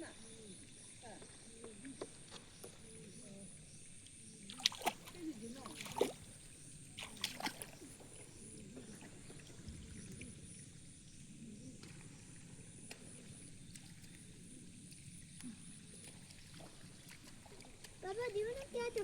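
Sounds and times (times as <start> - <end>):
shallow water sloshing: 4.5 - 10.2, 13.6 - 19.0.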